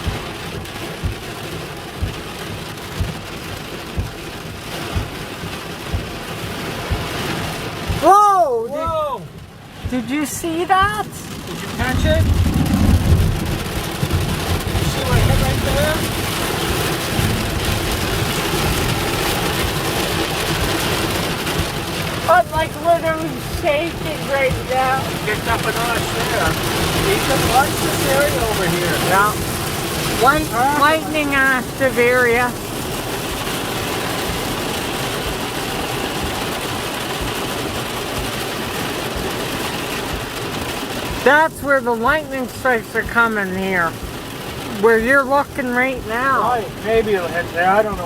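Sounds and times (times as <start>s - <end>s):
wind: 0.0s - 41.3s
heavy rain on vehicle roof: 0.0s - 48.0s
low rumble: 11.2s - 35.0s.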